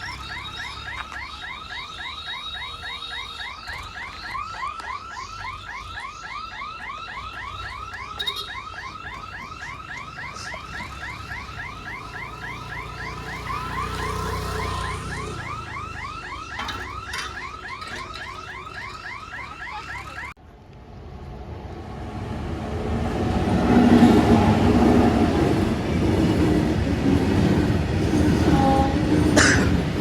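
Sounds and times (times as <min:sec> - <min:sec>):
electronic warning siren warbling: 0:00.0 - 0:20.4.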